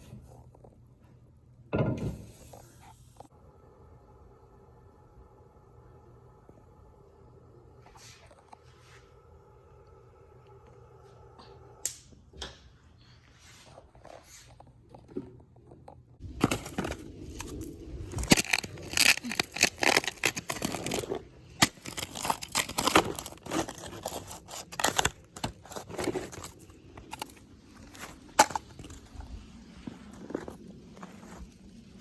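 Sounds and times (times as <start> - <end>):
snow crunching and scraping: 21.9 - 32.0.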